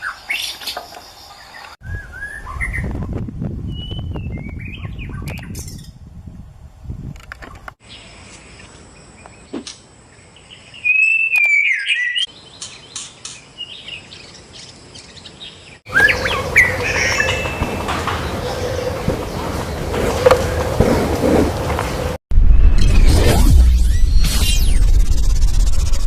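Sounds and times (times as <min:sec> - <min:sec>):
bird singing whistled phrases: 0:03.7 - 0:05.9, 0:10.8 - 0:12.3
bird chirping: 0:07.5 - 0:20.8.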